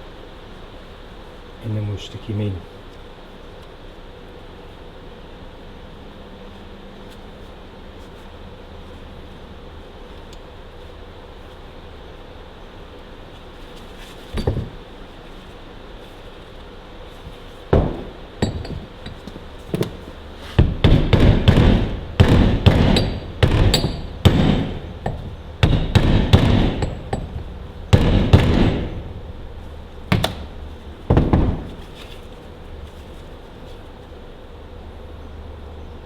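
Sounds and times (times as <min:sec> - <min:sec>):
hammer striking metal seal: 0:17.8 - 0:20.0, 0:20.6 - 0:29.2, 0:30.1 - 0:31.7.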